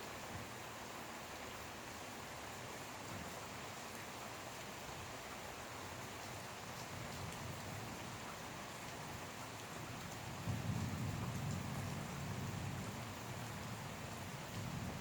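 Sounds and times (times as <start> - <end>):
steady rain falling: 0.0 - 15.0
low rumble of thunder: 9.8 - 15.0.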